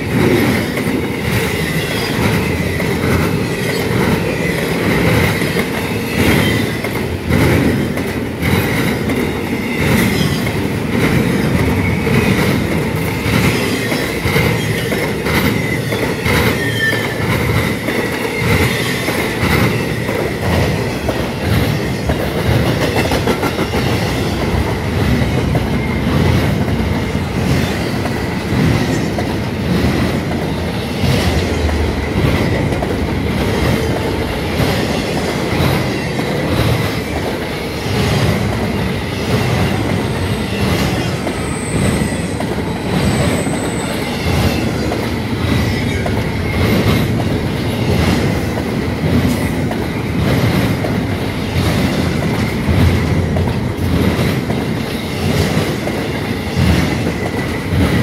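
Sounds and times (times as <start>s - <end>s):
clacks over rail joints: 0.0s - 58.0s
high wheel squeal: 13.6s - 17.3s, 40.5s - 44.9s.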